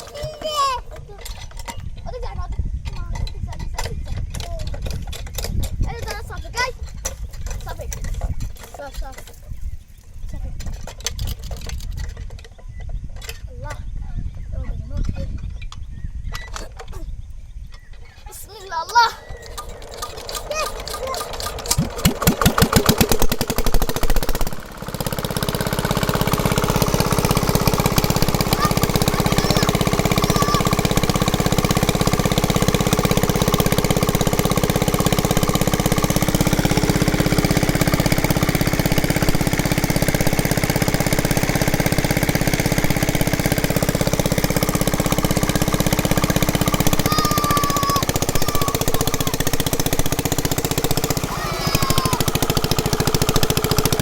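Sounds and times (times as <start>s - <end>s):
sewing machine running: 19.3s - 54.0s.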